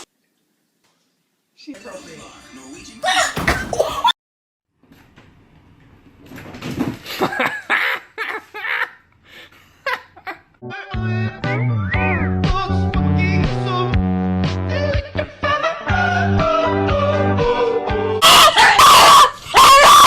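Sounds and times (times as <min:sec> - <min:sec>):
music with bass line: 0:10.7 - 0:18.2
bursts of laughter: 0:18.2 - 0:20.0.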